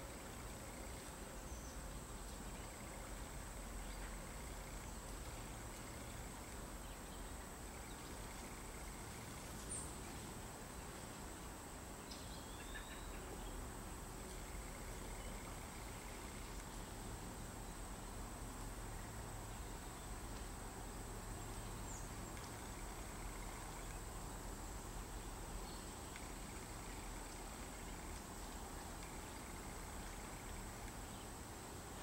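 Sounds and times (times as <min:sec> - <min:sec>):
small bird chirp: 0:12.1 - 0:13.6.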